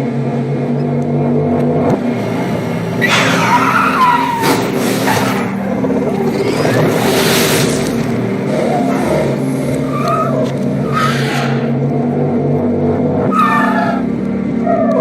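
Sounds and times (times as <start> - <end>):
low drone: 0.0 - 15.0
reversed car engine swells: 1.2 - 15.0
reversed tyre skids squealing: 2.0 - 11.9, 13.2 - 15.0.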